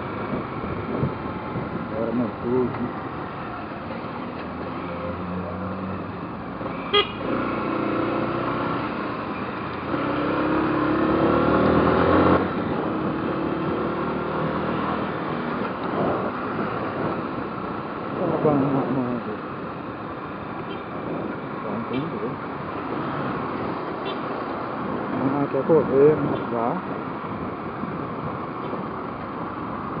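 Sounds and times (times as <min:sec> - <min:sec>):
motorcycle engine revving: 0:06.9 - 0:17.5.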